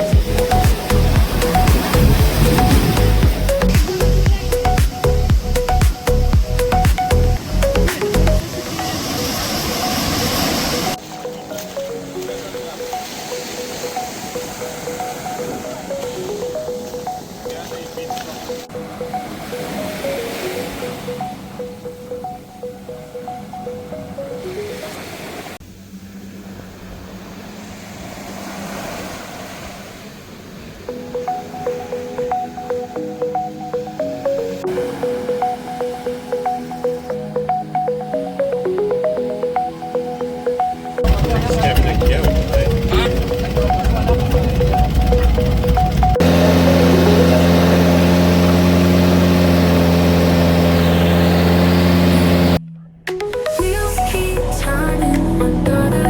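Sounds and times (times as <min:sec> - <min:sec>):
vehicle engine humming: 0:00.0 - 0:11.0, 0:41.0 - 0:56.0
background music: 0:00.0 - 0:25.5, 0:30.9 - 0:56.0.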